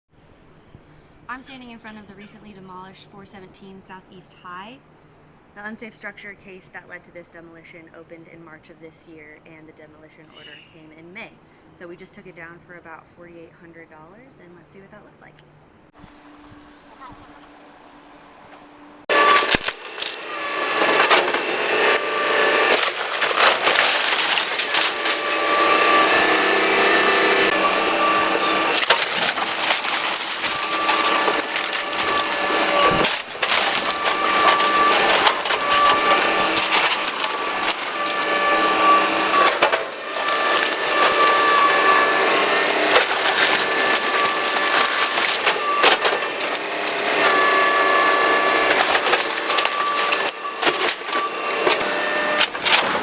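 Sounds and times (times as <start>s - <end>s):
machine whine: 16.0s - 53.0s
timber crunching and splintering: 16.0s - 53.0s.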